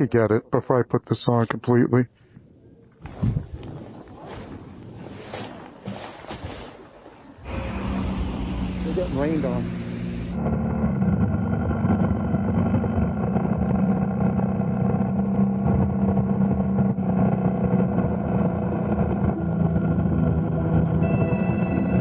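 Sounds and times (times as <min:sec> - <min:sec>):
motorcycle engine running: 0:07.5 - 0:22.0.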